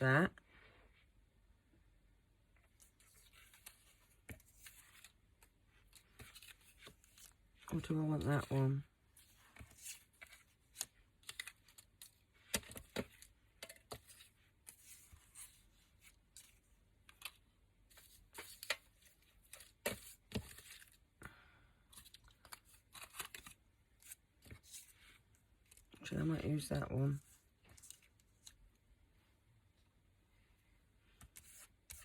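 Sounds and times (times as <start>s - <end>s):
paper rustling: 2.8s - 21.0s, 21.9s - 26.0s, 31.2s - 32.0s.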